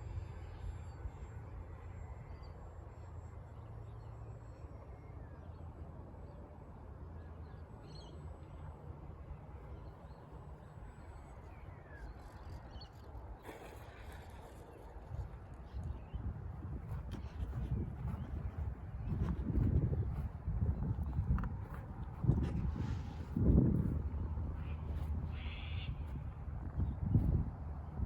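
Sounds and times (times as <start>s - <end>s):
wind rumble on microphone: 9.4s - 28.0s.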